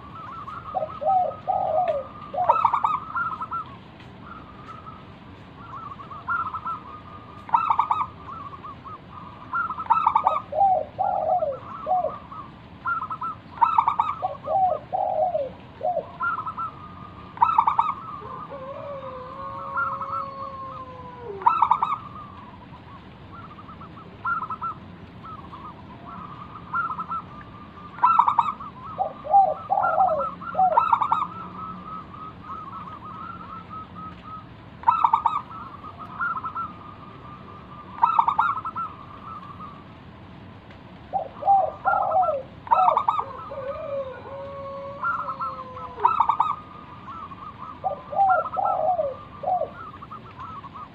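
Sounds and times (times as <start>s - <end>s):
dove cooing: 0.0s - 39.9s, 41.0s - 50.9s.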